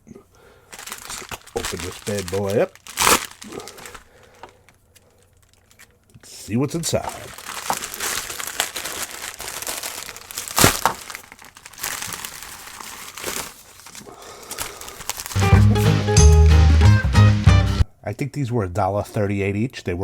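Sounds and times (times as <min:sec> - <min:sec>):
packaging crinkling: 0:00.4 - 0:15.6
background music: 0:15.4 - 0:17.9.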